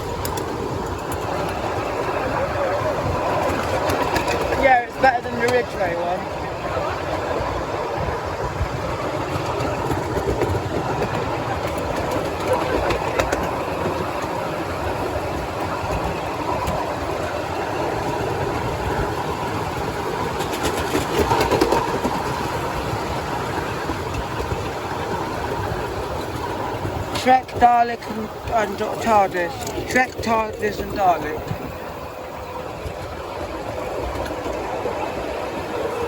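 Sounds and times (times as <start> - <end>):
sharp clicks of wheels: 0.0 - 2.0, 3.4 - 6.0, 26.2 - 31.9
train wheels rumbling on rails: 0.0 - 36.0.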